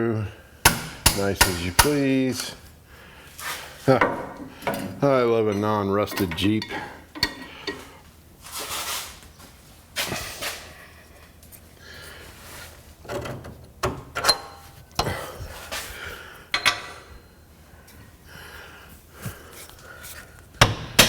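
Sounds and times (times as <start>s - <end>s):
metal tools clanking: 0.7s - 2.5s, 3.9s - 8.0s, 14.2s - 15.3s, 16.5s - 17.4s
shuffling and scraping: 1.2s - 13.5s, 17.8s - 20.5s.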